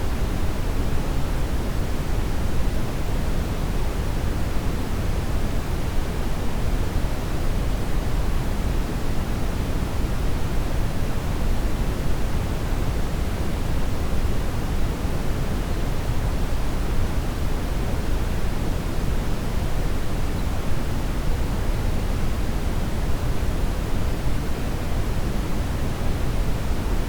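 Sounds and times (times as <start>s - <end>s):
brown noise hiss: 0.0s - 27.0s.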